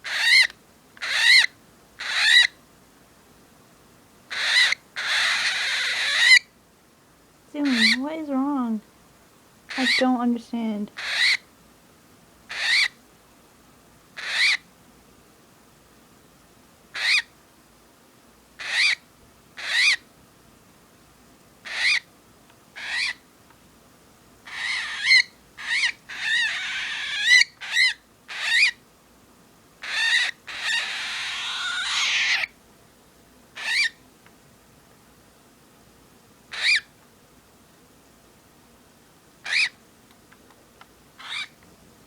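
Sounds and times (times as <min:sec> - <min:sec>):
cockatiel sharp calls: 0:00.0 - 0:02.6, 0:04.3 - 0:06.5, 0:07.6 - 0:08.0, 0:11.0 - 0:11.4, 0:12.5 - 0:13.0, 0:14.2 - 0:14.6, 0:17.0 - 0:17.3, 0:18.6 - 0:19.0, 0:19.6 - 0:20.0, 0:21.6 - 0:22.1, 0:22.8 - 0:23.2, 0:24.5 - 0:28.8, 0:29.8 - 0:32.6, 0:33.6 - 0:34.0, 0:36.5 - 0:36.9, 0:39.4 - 0:39.8, 0:41.2 - 0:41.6
cockatiel hissing growls: 0:29.8 - 0:32.5.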